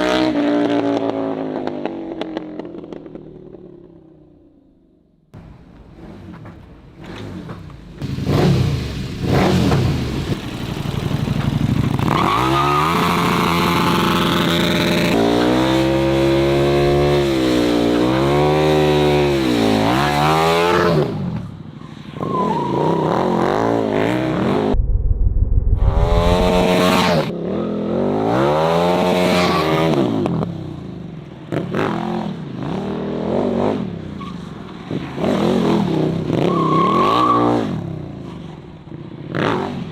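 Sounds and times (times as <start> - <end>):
motorcycle engine revving: 7.0 - 21.1, 23.4 - 30.2.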